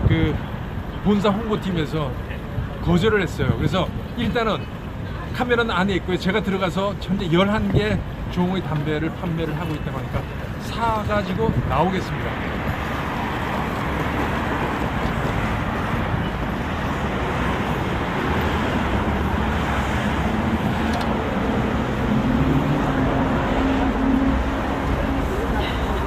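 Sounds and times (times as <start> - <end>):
cars passing: 0.0 - 26.0
vehicle engine low hum: 12.5 - 26.0.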